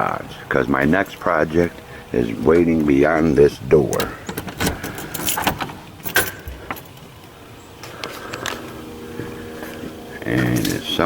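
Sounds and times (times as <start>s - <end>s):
quiet steady hum: 0.0s - 11.0s
door opening: 3.8s - 7.0s
keys jangling in a lock: 3.9s - 6.9s.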